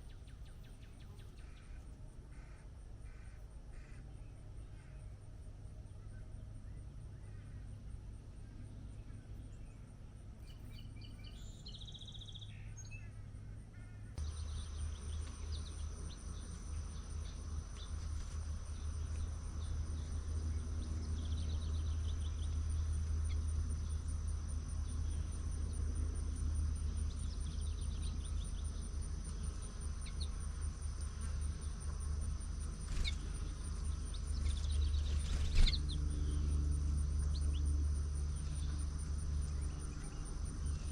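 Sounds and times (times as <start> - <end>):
crickets chirping: 0.0 - 40.9
low steady rumble: 0.0 - 40.9
bird chirps and trills: 14.2 - 24.1, 27.0 - 37.8.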